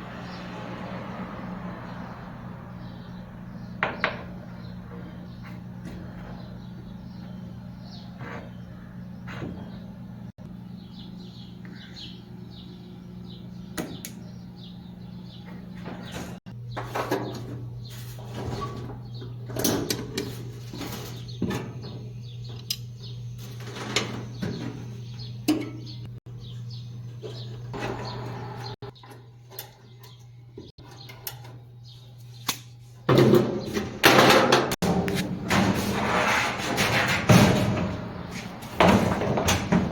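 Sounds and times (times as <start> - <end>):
steady low hum: 1.9 - 33.1
parts and tools clattering: 33.1 - 39.9.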